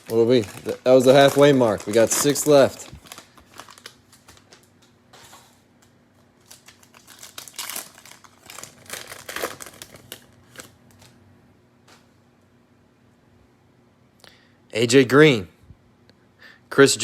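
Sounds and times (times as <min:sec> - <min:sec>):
cellophane wrapper crinkling and tearing: 0:00.0 - 0:04.9, 0:05.8 - 0:11.2.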